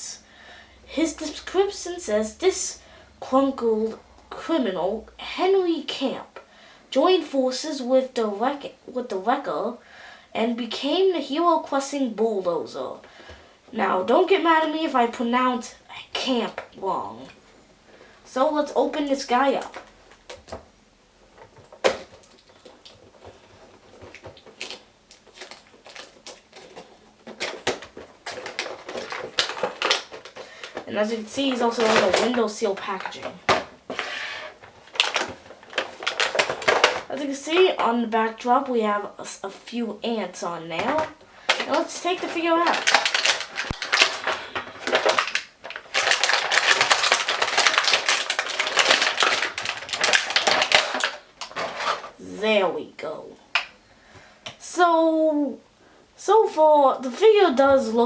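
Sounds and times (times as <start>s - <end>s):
plastic crinkling and clicking: 19.5s - 20.7s, 21.3s - 37.9s, 40.8s - 52.2s
cardboard packaging rustling: 21.2s - 37.2s, 40.7s - 52.3s.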